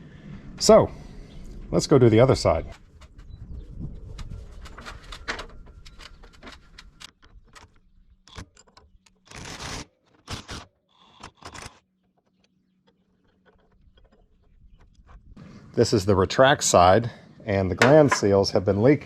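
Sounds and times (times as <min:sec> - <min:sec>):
tools and parts clicking: 0:04.2 - 0:14.3.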